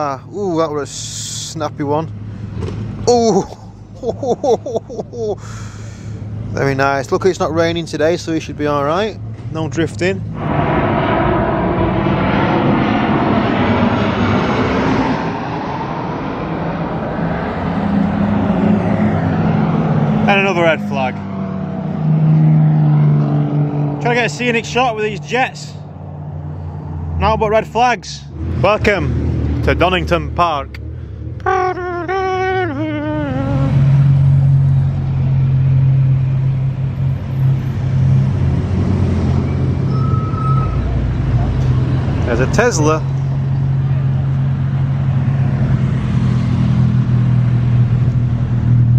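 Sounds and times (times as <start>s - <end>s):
engine humming: 0.8s - 48.9s
wavering gliding tone: 31.5s - 34.1s.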